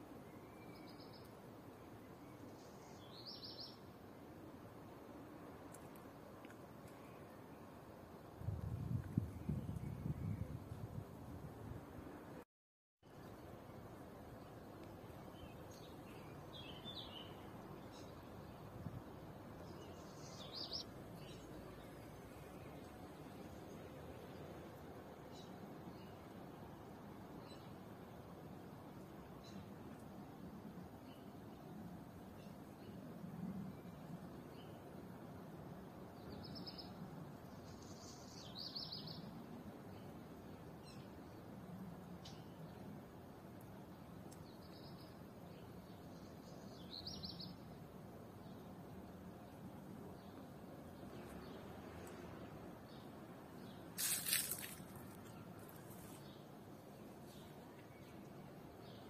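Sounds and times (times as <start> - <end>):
low background noise: 0.0 - 12.4, 13.0 - 59.0
small bird singing: 0.3 - 1.4, 2.3 - 3.9, 15.3 - 18.3, 19.6 - 22.7, 36.2 - 39.3, 44.4 - 47.7
outdoor background hum: 13.1 - 59.0.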